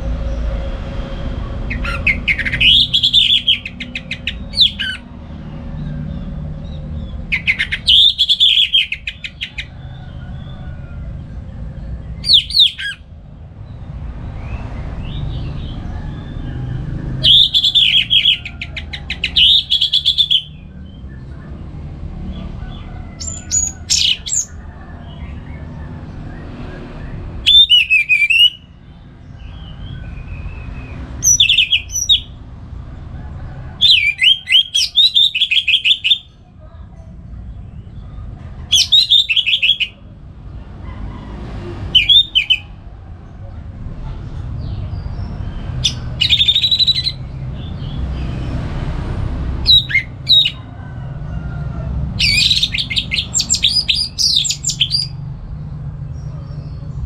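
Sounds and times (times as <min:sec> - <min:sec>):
bird singing trills and whistles: 0:01.7 - 0:05.1, 0:06.7 - 0:09.7, 0:12.2 - 0:13.0, 0:17.2 - 0:21.0, 0:23.2 - 0:24.5, 0:27.4 - 0:28.7, 0:30.2 - 0:32.3, 0:33.8 - 0:36.3, 0:38.7 - 0:40.0, 0:42.0 - 0:42.7, 0:45.8 - 0:47.8, 0:49.7 - 0:50.6, 0:52.2 - 0:55.1.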